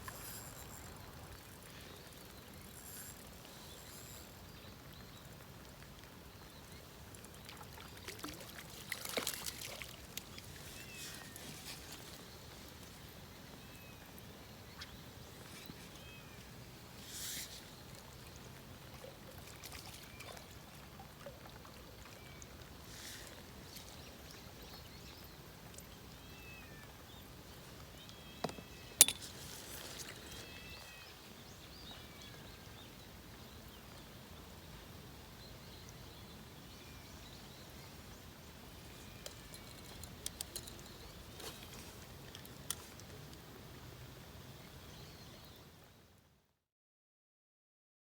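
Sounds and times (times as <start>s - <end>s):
faint outdoor ambience: 0.0s - 46.5s.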